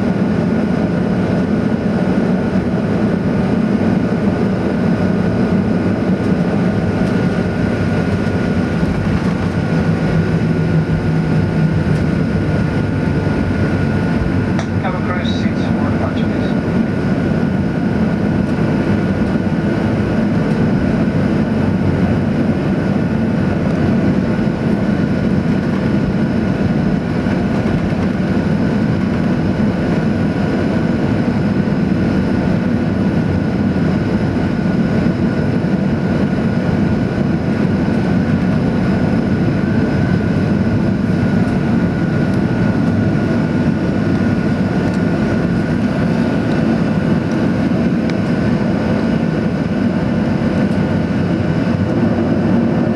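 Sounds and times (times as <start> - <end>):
high engine whine: 0.0 - 52.9
jet engine cabin rush: 0.1 - 52.9.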